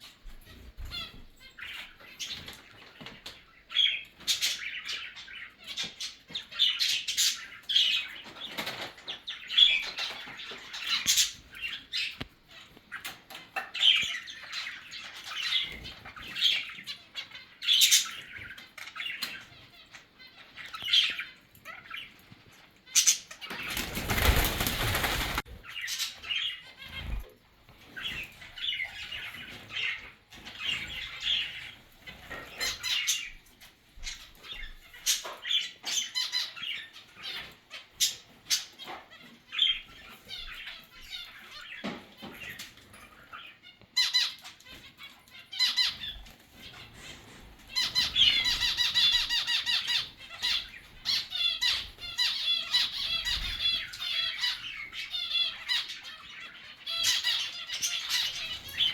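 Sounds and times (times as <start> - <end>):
birds chirping and squawking: 0.0 - 58.9
wings fluttering: 23.4 - 27.3.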